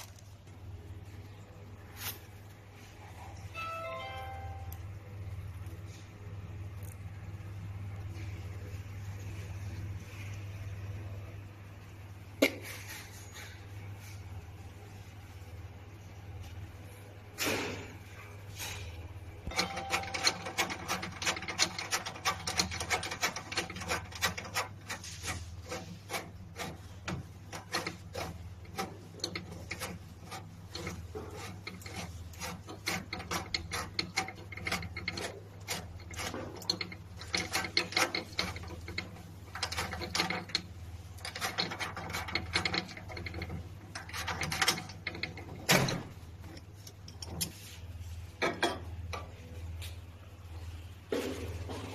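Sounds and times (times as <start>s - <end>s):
steady low hum: 0.0s - 51.9s
tools scraping and clicking: 18.5s - 50.0s.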